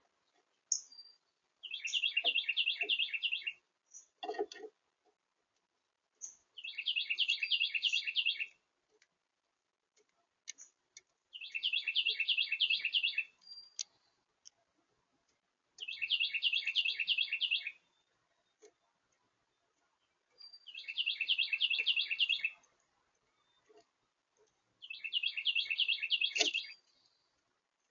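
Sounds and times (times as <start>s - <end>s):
songbird trilling: 0.7s - 3.6s, 6.2s - 8.5s, 11.3s - 13.9s, 15.8s - 17.9s, 20.4s - 22.6s, 24.8s - 26.8s.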